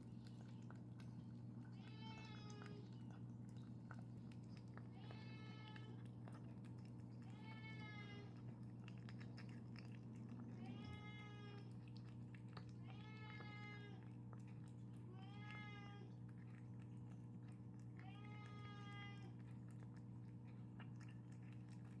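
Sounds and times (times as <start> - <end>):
steady low hum: 0.0 - 22.0
cat meowing: 1.8 - 2.9, 4.9 - 6.0, 7.3 - 8.4, 10.6 - 11.7, 12.8 - 14.0, 15.1 - 16.2, 18.0 - 19.4.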